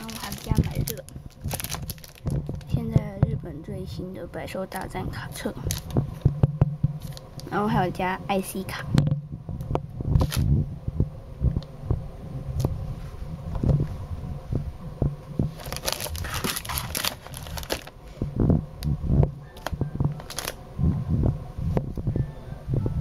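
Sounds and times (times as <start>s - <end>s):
plastic crinkling: 0.0s - 3.0s, 4.7s - 6.2s, 7.0s - 7.5s, 10.2s - 10.5s, 15.5s - 18.0s, 19.5s - 20.6s.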